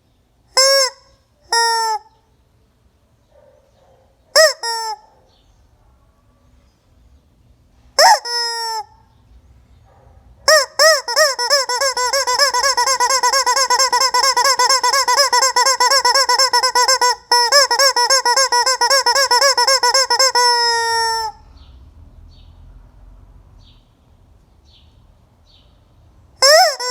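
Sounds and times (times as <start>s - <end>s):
rubber chicken toy squawking: 0.5s - 2.2s, 4.3s - 5.1s, 8.0s - 9.0s, 10.5s - 21.4s, 26.4s - 26.9s.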